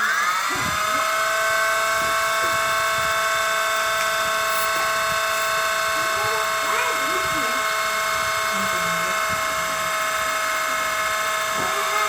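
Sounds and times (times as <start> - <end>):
toy helicopter motor whine: 0.0 - 12.0.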